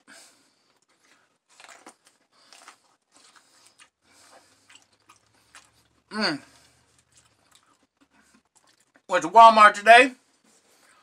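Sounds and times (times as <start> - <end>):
biting and chewing corn cob: 0.6 - 9.1.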